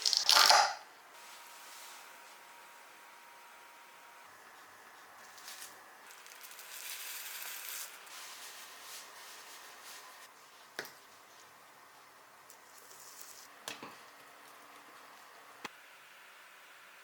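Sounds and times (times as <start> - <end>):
rustling handling noise: 5.2 - 11.6.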